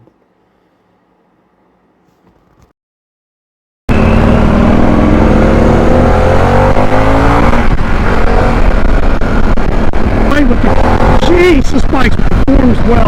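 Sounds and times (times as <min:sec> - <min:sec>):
motorcycle engine accelerating: 0:03.9 - 0:13.0
wind noise: 0:04.7 - 0:13.0.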